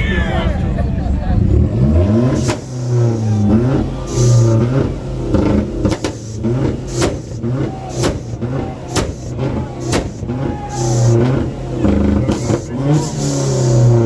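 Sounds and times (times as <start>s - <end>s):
car engine revving: 0.0s - 14.0s
sharp cracks: 5.4s - 14.0s.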